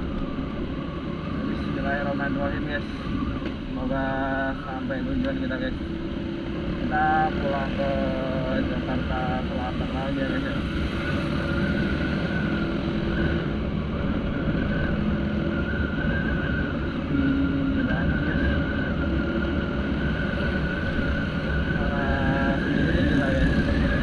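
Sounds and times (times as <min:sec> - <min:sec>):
road rumble: 0:00.0 - 0:24.0
scooter engine drone: 0:00.0 - 0:24.0
wind on microphone: 0:00.0 - 0:24.0.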